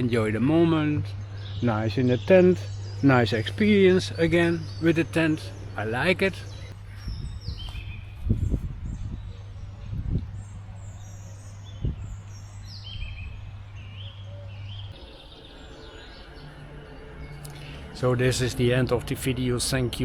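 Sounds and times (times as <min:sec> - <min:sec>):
steady low hum: 0:00.0 - 0:20.0
wild birds chirping: 0:00.0 - 0:20.0.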